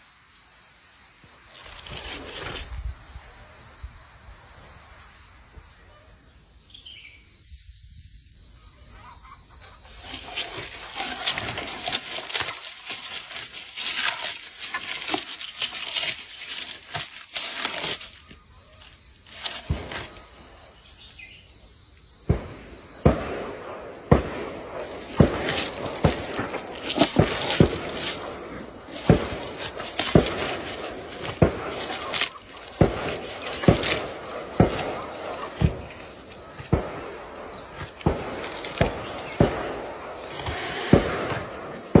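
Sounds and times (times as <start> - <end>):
insect chirping: 0.0 - 42.0
outdoor background noise: 0.0 - 42.0
faint bird chirping: 5.7 - 10.0, 20.1 - 21.9
dull thumps: 22.2 - 42.0.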